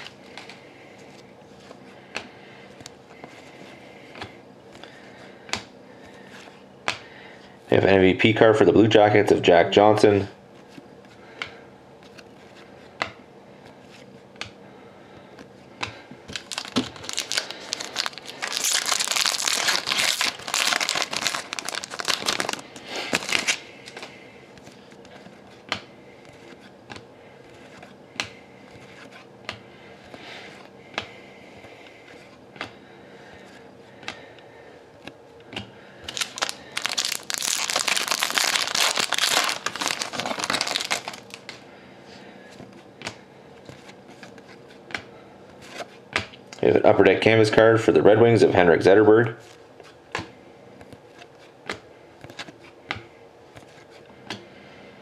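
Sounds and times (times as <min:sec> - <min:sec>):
foil wrappers tearing and crinkling: 0:16.3 - 0:24.0, 0:36.1 - 0:41.5.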